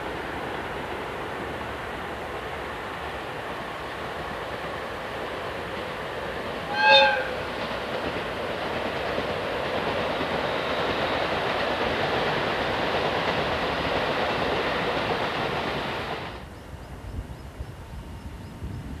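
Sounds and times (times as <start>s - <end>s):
train wheels rumbling on rail: 0.0s - 19.0s
wheels clickety-clack: 7.2s - 16.2s.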